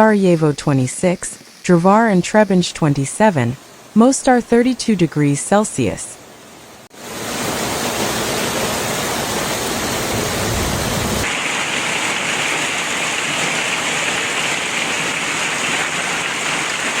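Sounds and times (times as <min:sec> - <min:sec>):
storm water rushing: 0:06.4 - 0:17.0.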